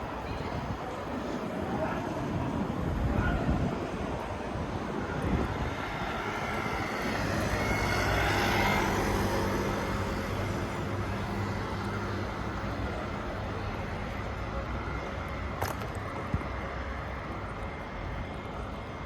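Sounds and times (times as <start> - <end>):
vehicle passing: 5.9 - 13.2.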